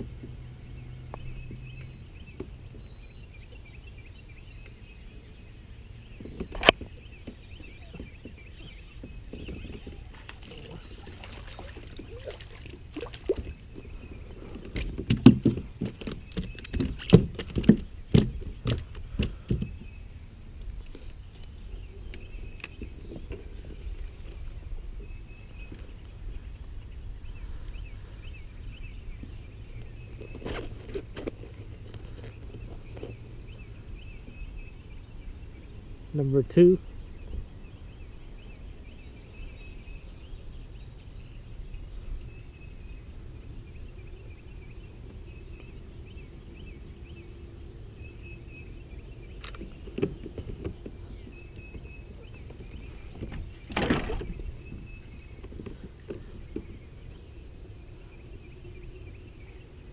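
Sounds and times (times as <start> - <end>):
small birds chirping: 0.0 - 59.9
small bird chirping: 6.0 - 14.9.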